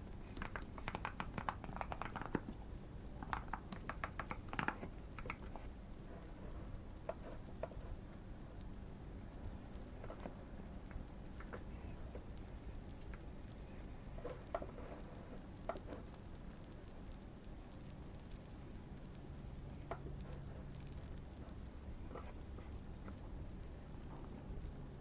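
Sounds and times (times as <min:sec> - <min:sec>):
faint fire crackling: 0:00.0 - 0:25.0.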